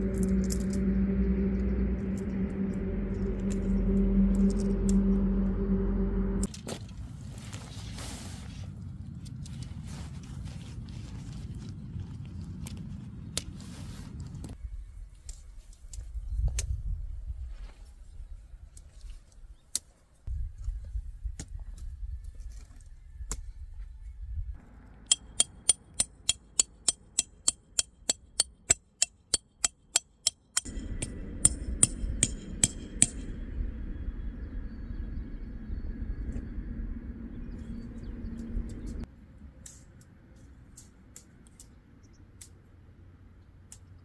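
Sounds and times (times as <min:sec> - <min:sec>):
ringing metallic strikes: 0:00.0 - 0:06.5, 0:30.7 - 0:35.2.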